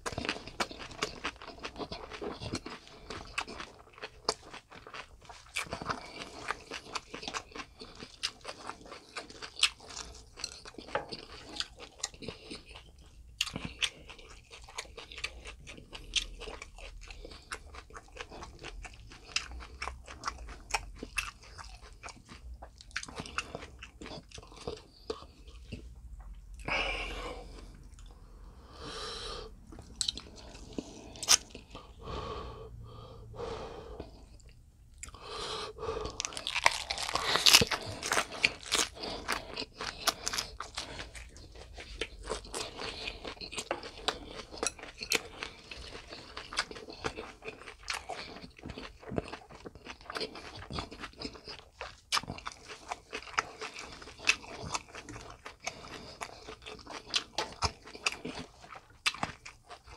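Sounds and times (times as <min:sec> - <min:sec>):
crunchy chewing: 0:00.0 - 0:25.9, 0:29.6 - 0:32.0, 0:33.4 - 0:59.9.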